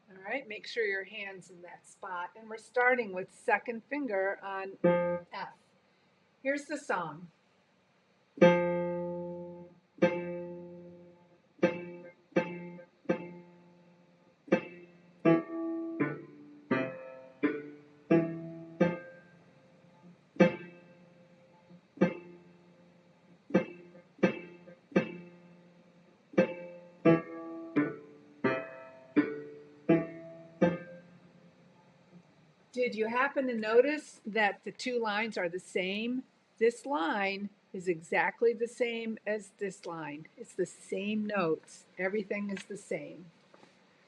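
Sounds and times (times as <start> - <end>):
piano bass melody: 4.8 - 5.2, 8.4 - 13.9, 14.5 - 31.8.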